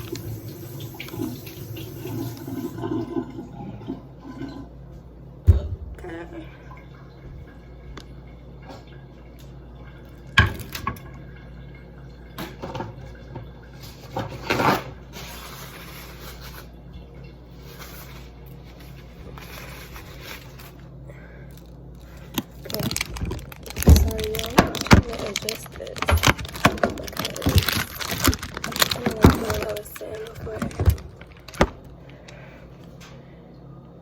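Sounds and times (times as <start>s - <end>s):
tap water running: 0.0s - 4.9s, 5.5s - 19.9s, 22.1s - 32.5s
knocks and clatters of handling: 22.3s - 31.9s.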